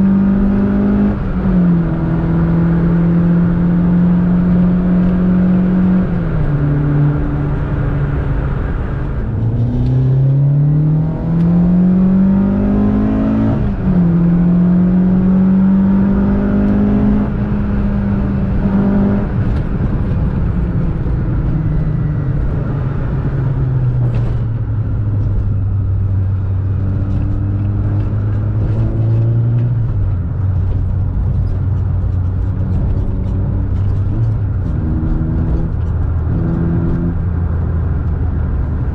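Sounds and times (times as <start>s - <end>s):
car engine at full throttle: 0.0s - 38.9s.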